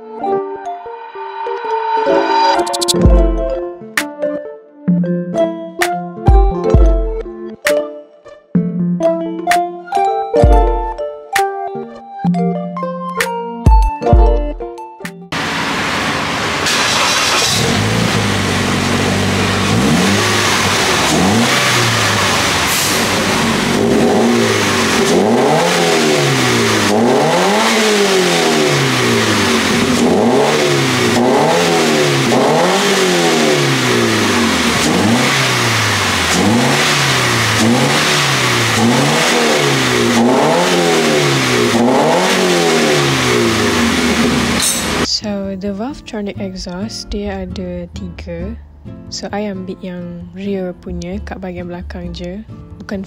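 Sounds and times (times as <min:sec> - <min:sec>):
car engine idling and revving: 0:15.3 - 0:45.1.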